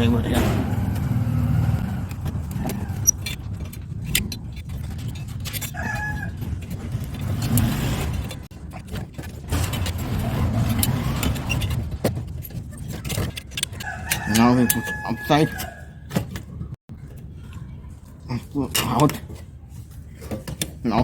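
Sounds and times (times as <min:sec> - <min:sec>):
low traffic rumble: 0:00.0 - 0:21.0
screwdriver and metal parts clicking: 0:02.0 - 0:15.7.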